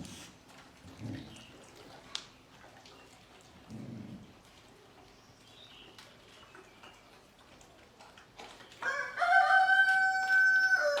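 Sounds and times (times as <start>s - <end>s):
rooster crowing: 8.8s - 11.0s.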